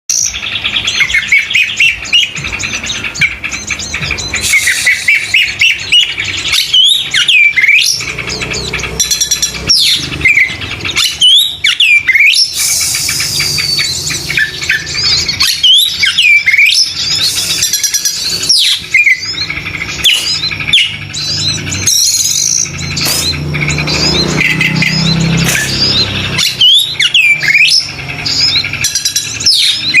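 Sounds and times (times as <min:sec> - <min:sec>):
bird singing whistled phrases: 0:00.1 - 0:30.0
short harsh bird notes: 0:00.1 - 0:30.0.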